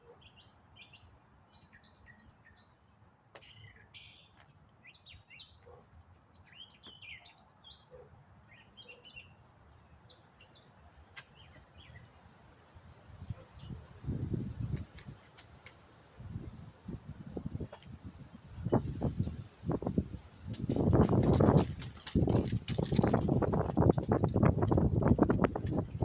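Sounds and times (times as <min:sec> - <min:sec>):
small birds chirping: 0:00.0 - 0:12.3, 0:13.0 - 0:15.8
low rumble of wind: 0:09.4 - 0:26.0.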